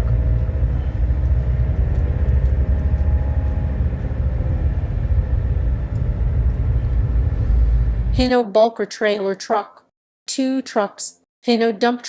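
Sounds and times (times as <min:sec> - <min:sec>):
deep road rumble: 0:00.0 - 0:08.3
diesel truck engine drone: 0:00.0 - 0:08.3.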